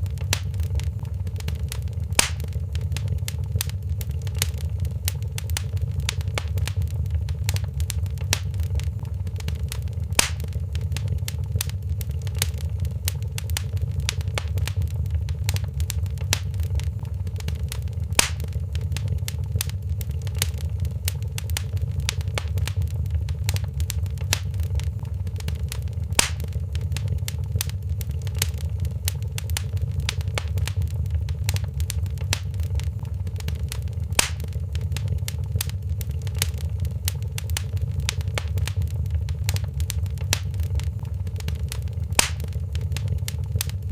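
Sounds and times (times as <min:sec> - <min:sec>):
fire rumbling: 0:00.0 - 0:43.9
fire snapping and popping: 0:00.0 - 0:43.9
loud fire pops: 0:00.0 - 0:43.9.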